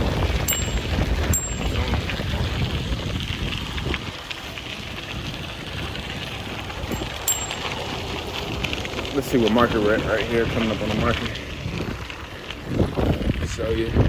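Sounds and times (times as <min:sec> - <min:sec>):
bicycle tyres crackling on trail: 0:00.0 - 0:14.0
wind buffeting microphone: 0:00.0 - 0:14.0.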